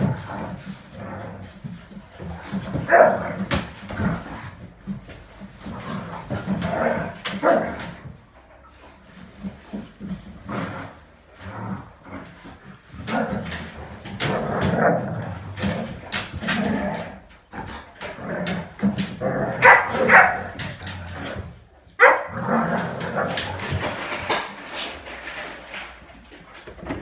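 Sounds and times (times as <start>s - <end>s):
dogs growling: 0.0s - 26.4s
dogs barking: 19.6s - 20.6s, 22.0s - 22.4s.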